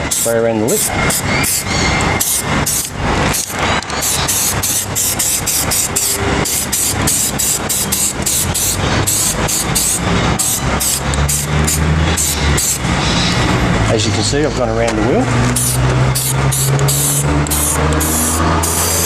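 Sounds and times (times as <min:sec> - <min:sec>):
aerosol spray can hissing: 0:00.0 - 0:12.8, 0:15.5 - 0:19.0
low engine hum: 0:04.6 - 0:19.0.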